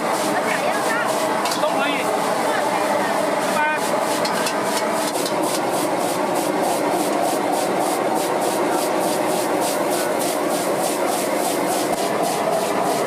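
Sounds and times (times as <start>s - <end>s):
gas burner rushing: 0.0s - 13.0s
spatula scraping wok: 3.8s - 13.0s.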